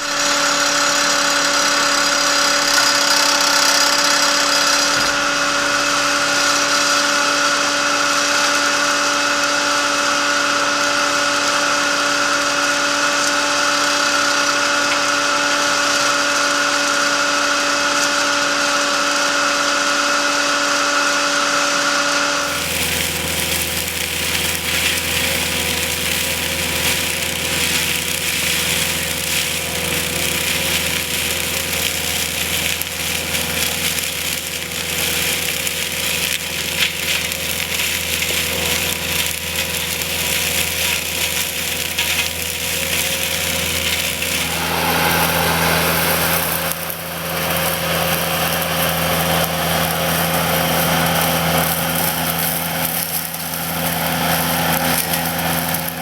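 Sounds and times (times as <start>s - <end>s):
skid steer engine running: 0.0s - 56.0s
flail mower chewing through vegetation: 22.4s - 56.0s.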